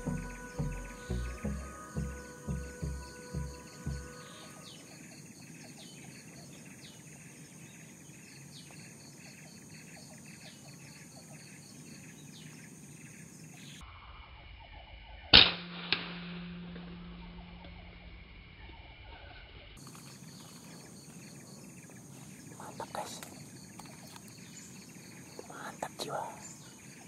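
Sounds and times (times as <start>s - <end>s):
high-pitched whine: 0.0s - 5.0s, 13.8s - 19.8s
birds calling: 0.0s - 13.8s, 19.8s - 27.0s
loud sharp crack: 15.4s - 18.0s.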